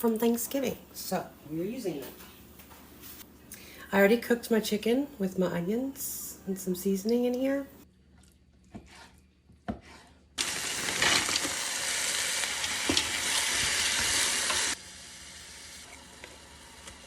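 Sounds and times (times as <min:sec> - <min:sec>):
chicken and onions sizzling in a pan: 0:10.4 - 0:17.0.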